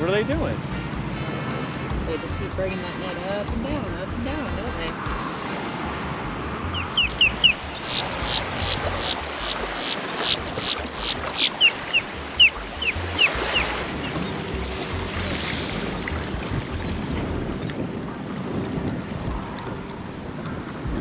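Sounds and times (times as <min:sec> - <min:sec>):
surf: 0:00.0 - 0:21.0
wind: 0:00.0 - 0:21.0
bird chirping: 0:06.7 - 0:09.2.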